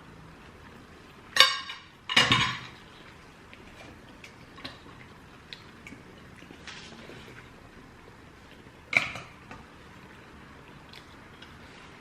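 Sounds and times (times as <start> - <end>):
cutlery clinking on a plate: 1.4 - 2.8.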